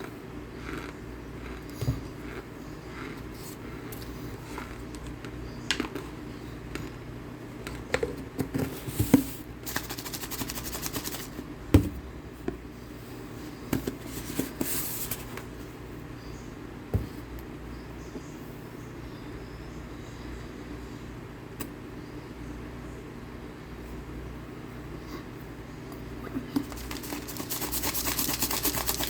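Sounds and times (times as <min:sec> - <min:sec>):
chewing and crunching: 0:00.0 - 0:07.0, 0:26.6 - 0:29.0.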